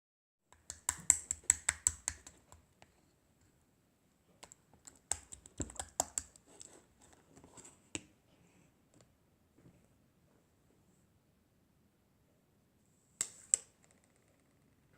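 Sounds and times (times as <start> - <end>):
quick sharp clicks and taps: 0.5 - 2.6, 4.4 - 6.4.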